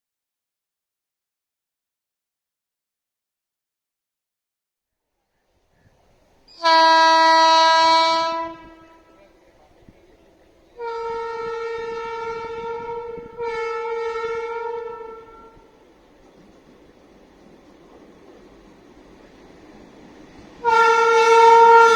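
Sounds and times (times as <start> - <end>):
low locomotive horn blast: 6.4 - 16.1, 20.6 - 21.9
higher-pitched locomotive horn: 6.5 - 9.4, 10.8 - 15.8, 20.6 - 21.9.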